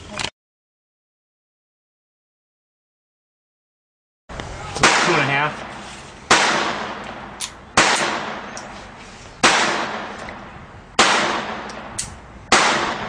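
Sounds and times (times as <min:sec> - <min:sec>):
pistol shots echoing: 0:04.8 - 0:05.5, 0:06.3 - 0:08.6, 0:09.4 - 0:10.3, 0:11.0 - 0:13.0.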